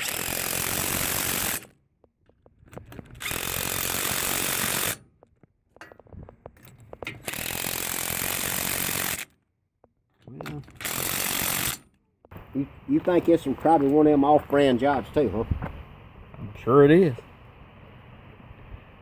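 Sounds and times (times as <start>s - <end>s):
power tool running: 0.0s - 1.7s, 3.2s - 5.0s, 7.2s - 9.3s, 10.7s - 11.8s
small clicks and knocks: 2.0s - 3.4s.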